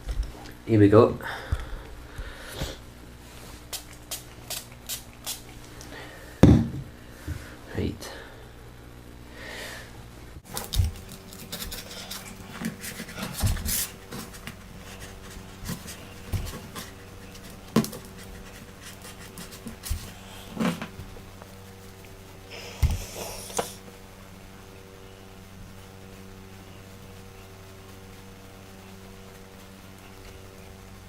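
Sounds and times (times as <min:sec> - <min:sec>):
cloth rubbing glass screen: 0:11.4 - 0:20.8.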